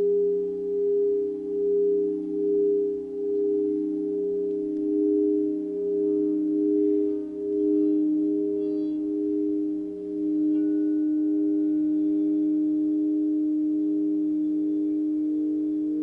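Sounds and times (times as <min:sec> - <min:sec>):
layered sustained pure tones: 0:00.0 - 0:16.0.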